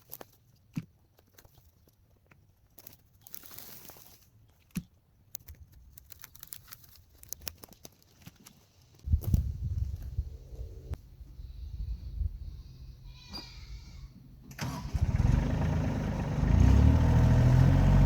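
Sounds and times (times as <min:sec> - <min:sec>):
dry branches crackling and rustling: 0:00.0 - 0:10.2.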